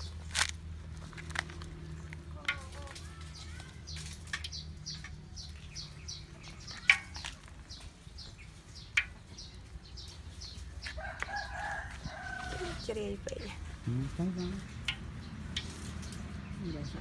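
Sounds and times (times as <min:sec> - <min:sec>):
small bird chirping: 0:01.9 - 0:11.4.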